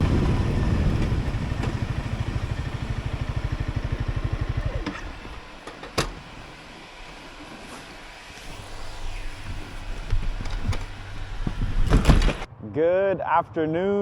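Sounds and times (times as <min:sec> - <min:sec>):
motorcycle engine idling: 0:00.0 - 0:05.8.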